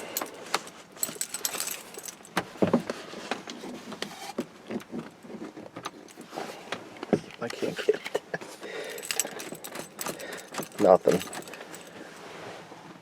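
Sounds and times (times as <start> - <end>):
keys jangling: 0.0 - 2.4, 8.8 - 12.2.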